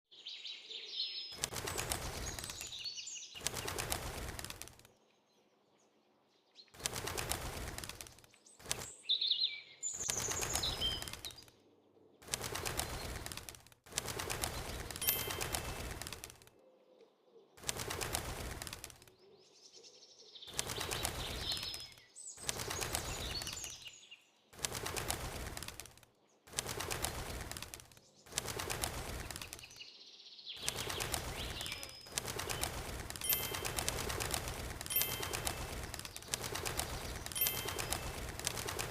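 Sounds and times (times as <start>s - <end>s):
bird wings flapping: 1.3s - 5.0s, 6.7s - 9.2s, 9.8s - 11.6s, 12.2s - 16.5s, 17.6s - 19.3s, 20.5s - 29.9s, 30.6s - 38.9s
high chirping calls: 15.0s - 15.8s, 33.2s - 34.2s, 34.9s - 38.4s.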